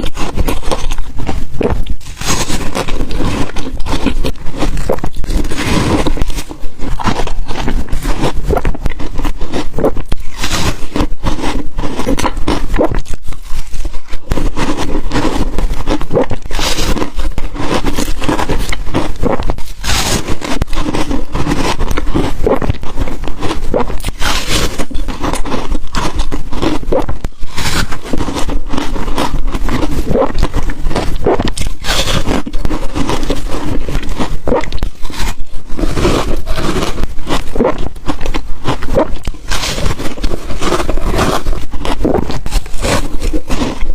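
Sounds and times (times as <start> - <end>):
ice crunching between teeth: 0.0 - 43.9.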